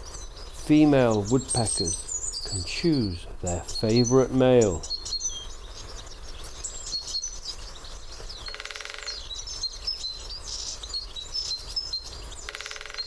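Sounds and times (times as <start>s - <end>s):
woodpecker drumming: 0.0s - 5.2s, 8.5s - 9.3s, 12.4s - 13.0s
small birds chirping: 0.0s - 13.0s.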